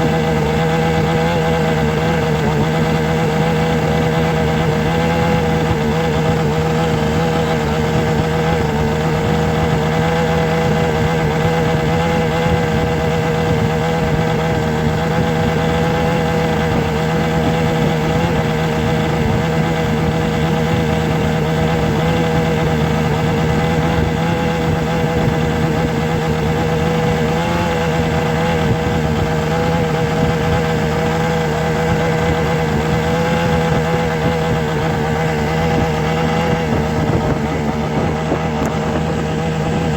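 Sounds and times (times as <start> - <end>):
motor humming: 0.0 - 39.9.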